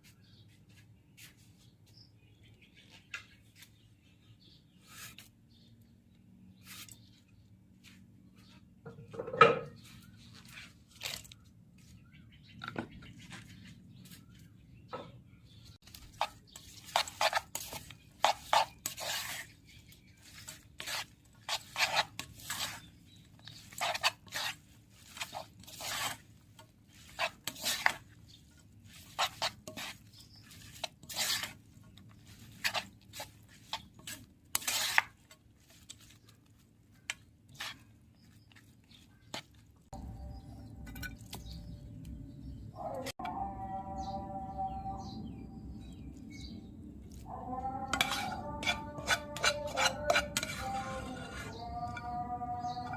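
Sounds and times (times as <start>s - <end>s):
utensils clinking on dishes: 40.7s - 41.6s, 48.0s - 52.9s.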